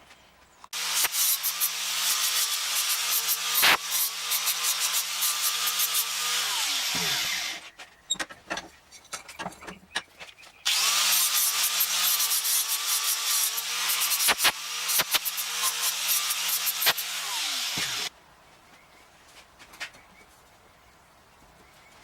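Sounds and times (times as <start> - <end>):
angle grinder grinding metal: 0.7 - 7.7, 10.7 - 18.1.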